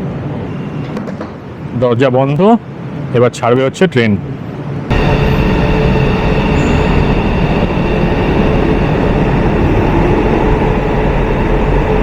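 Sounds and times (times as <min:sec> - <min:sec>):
steady hum: 0:04.9 - 0:12.0
train running noise: 0:04.9 - 0:12.0.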